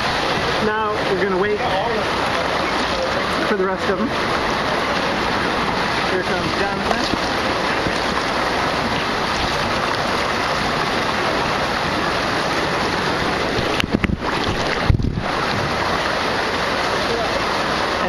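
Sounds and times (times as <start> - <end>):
water rushing into pool: 0.0 - 18.0
wind on microphone: 5.2 - 16.1.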